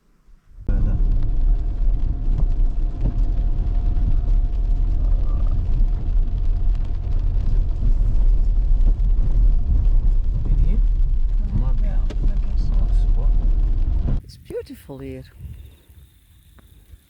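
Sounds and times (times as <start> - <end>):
vehicle engine and road rumble: 0.0 - 14.3.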